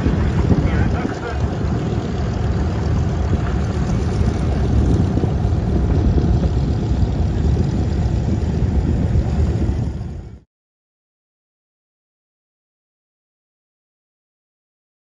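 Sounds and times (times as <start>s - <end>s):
vehicle engine low rumble: 0.0s - 10.5s.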